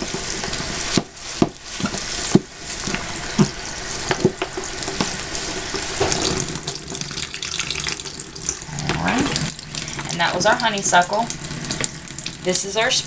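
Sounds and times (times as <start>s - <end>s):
tap water running into sink: 0.0s - 13.0s
water splashes: 3.0s - 13.0s.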